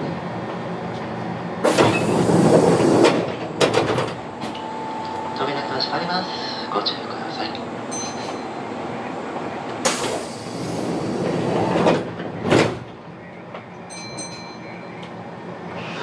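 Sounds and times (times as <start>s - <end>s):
rushing train noise: 0.0s - 16.0s
train car running noise: 0.0s - 16.0s.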